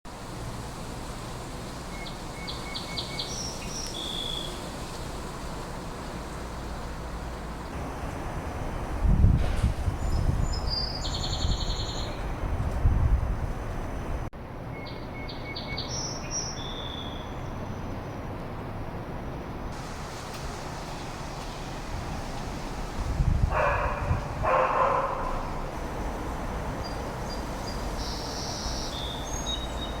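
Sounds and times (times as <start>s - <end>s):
distant city traffic rumble: 0.1s - 30.0s
dog barking: 23.5s - 25.5s
small bird chirping: 26.8s - 30.0s.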